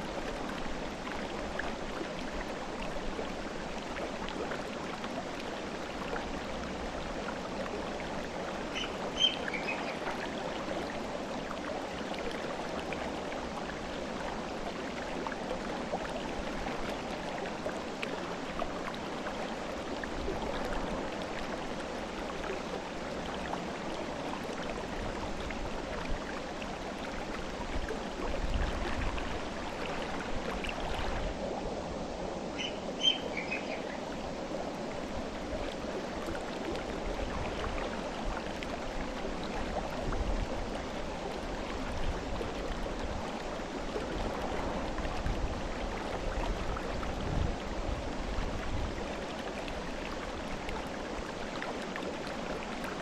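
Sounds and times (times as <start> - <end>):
river water rushing: 0.0 - 53.0
bird chirps: 8.8 - 10.0, 32.6 - 33.8.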